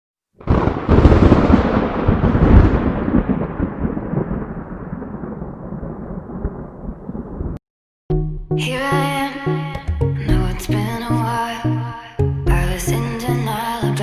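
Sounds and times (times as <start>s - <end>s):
thunderclap rumbling: 0.4s - 7.6s.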